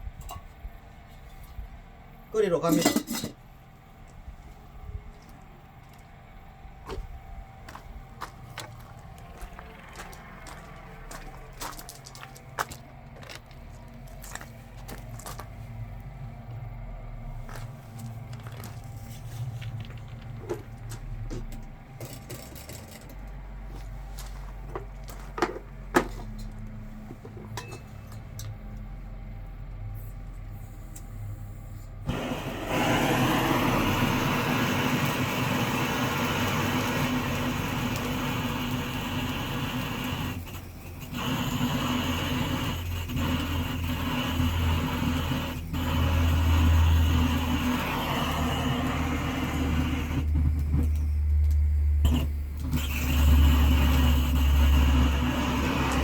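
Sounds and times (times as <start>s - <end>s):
loud steady motor noise: 4.8s - 23.8s, 32.1s - 56.0s.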